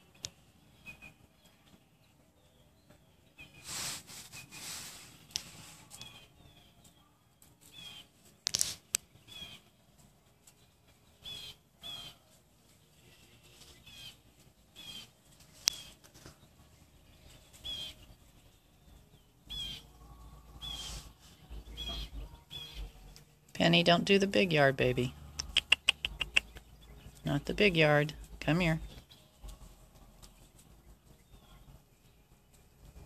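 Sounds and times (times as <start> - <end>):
songbird chirping: 0.0 - 33.0
rustling: 3.4 - 23.6
sharp clicks: 25.4 - 26.7.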